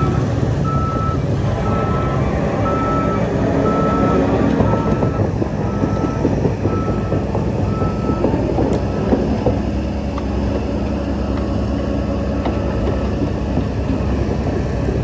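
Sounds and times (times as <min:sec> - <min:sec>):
reversing alarm beeping: 0:00.0 - 0:09.3
heavy diesel machinery running: 0:00.0 - 0:15.0.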